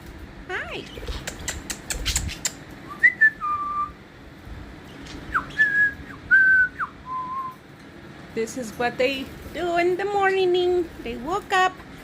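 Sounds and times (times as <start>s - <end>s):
sharp clicks: 1.1s - 2.6s
person whistling: 5.6s - 7.5s.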